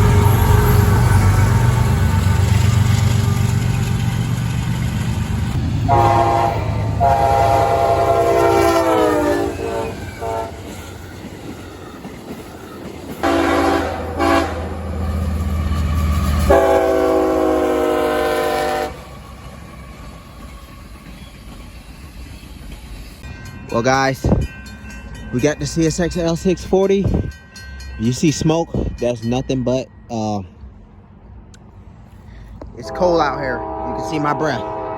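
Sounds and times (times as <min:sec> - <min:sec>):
diesel locomotive rumbling past: 0:00.0 - 0:34.9
locomotive air horn blasts: 0:05.9 - 0:10.7, 0:13.2 - 0:14.9, 0:16.5 - 0:19.0, 0:32.8 - 0:34.9.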